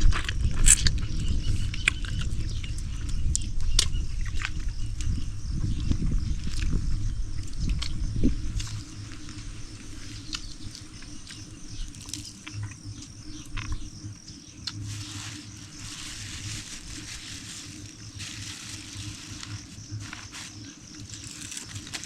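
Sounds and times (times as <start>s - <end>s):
twigs clicking and snapping: 10.2s - 13.9s, 14.6s - 22.0s
rustling in dry leaves: 14.6s - 22.0s.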